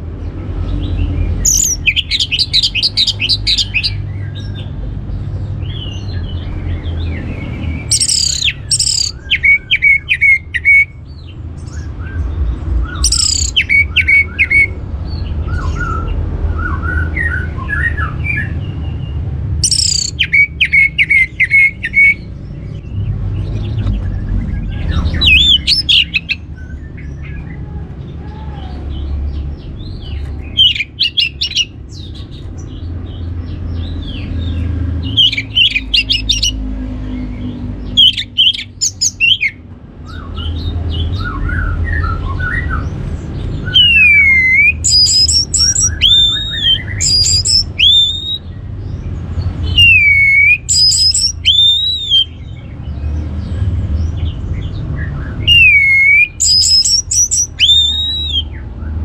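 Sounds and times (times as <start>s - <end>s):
thrush singing: 1.0s - 4.8s, 5.6s - 11.0s, 12.9s - 14.8s, 19.6s - 22.4s, 23.5s - 32.5s, 33.8s - 39.6s, 40.4s - 48.6s, 49.6s - 52.4s, 55.0s - 58.6s
loud curved whistles: 43.7s - 48.4s, 49.7s - 52.3s, 55.4s - 58.6s.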